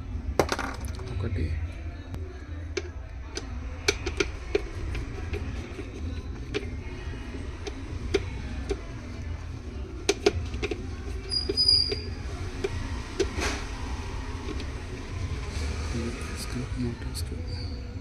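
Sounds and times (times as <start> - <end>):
faint background music: 0.0 - 18.0
brief squeak: 11.3 - 12.1.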